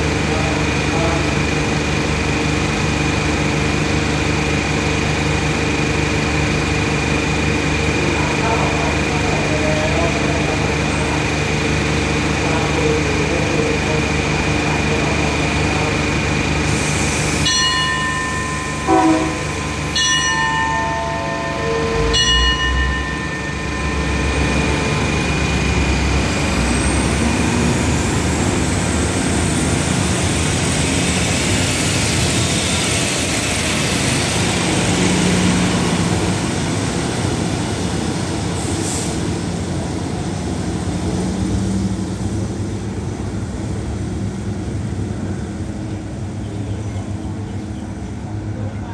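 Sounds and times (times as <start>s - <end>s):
deep train engine rumble: 0.0s - 48.9s
train signal toots: 15.0s - 28.2s.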